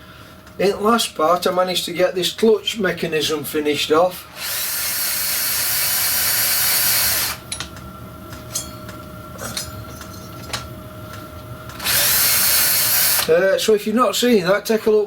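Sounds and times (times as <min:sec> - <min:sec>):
electric machine hissing and whining: 0:04.3 - 0:07.5, 0:11.7 - 0:13.4.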